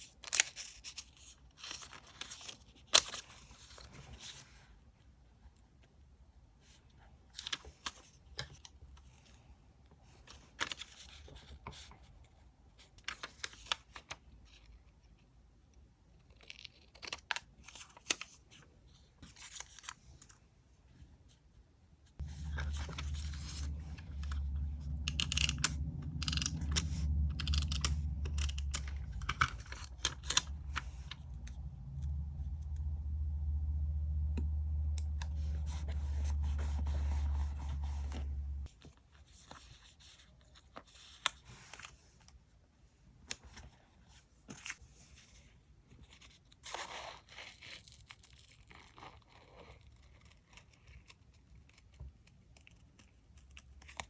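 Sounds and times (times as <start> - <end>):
steady low hum: 22.2 - 38.7.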